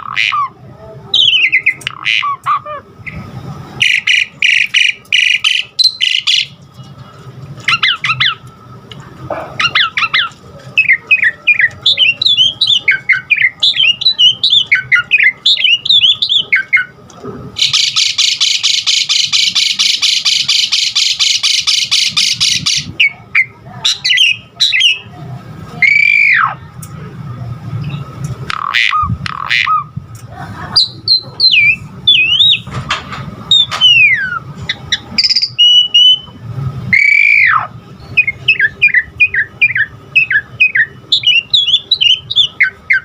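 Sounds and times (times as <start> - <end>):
starling chirps and warbling: 0.0 - 6.8, 7.6 - 8.5, 9.4 - 17.0, 17.6 - 26.8, 27.7 - 32.8, 33.4 - 43.0
loud falling bird whistle: 36.9 - 43.0.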